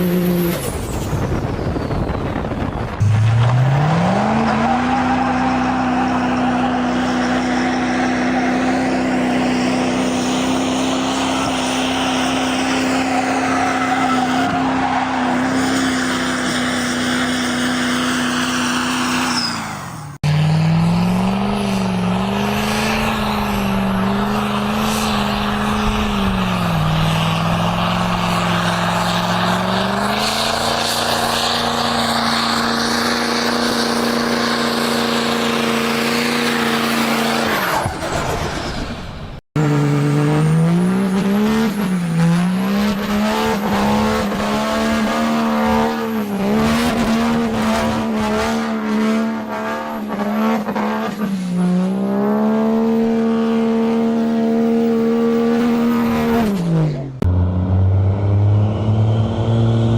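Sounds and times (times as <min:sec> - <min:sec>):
diesel truck engine revving: 0:00.0 - 0:59.9.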